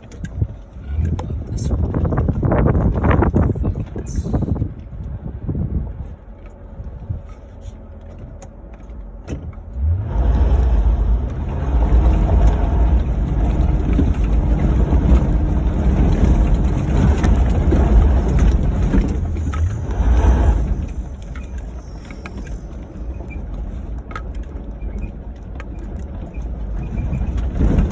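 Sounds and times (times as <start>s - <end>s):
car engine revving: 6.5s - 27.9s.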